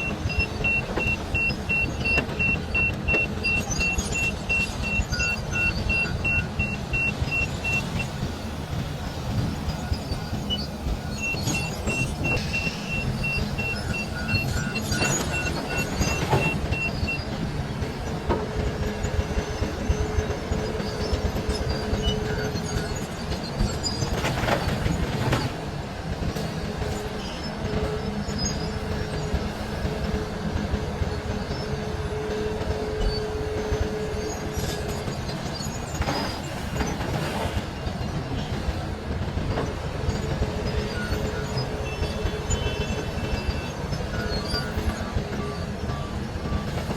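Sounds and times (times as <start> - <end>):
beeping alarm: 0.0 - 8.4, 9.2 - 25.6, 39.5 - 46.9
faint hydraulic whine: 0.0 - 25.6
excavator engine and hydraulics rumble: 0.0 - 46.9.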